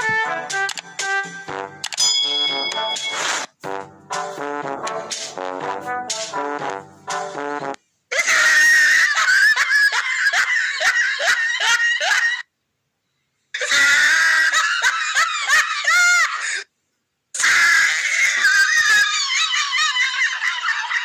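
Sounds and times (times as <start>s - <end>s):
shrill cackling laugh effect: 8.2s - 12.5s, 13.6s - 16.6s, 18.0s - 21.0s.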